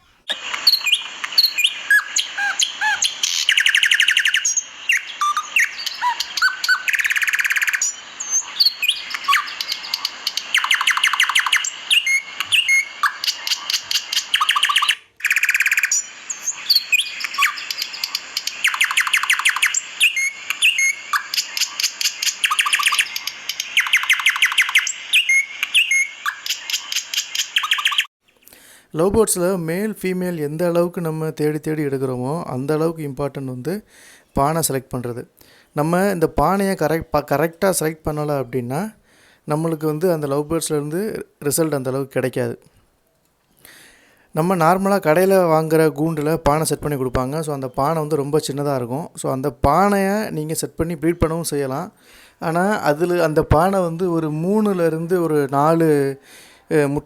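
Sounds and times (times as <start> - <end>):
lovebirds chirping and trilling: 0.0 - 28.6, 46.2 - 48.8.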